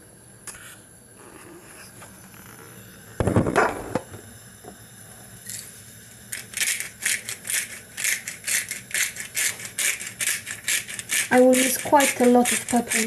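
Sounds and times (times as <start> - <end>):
pepper shaker rattling: 6.3 - 13.0.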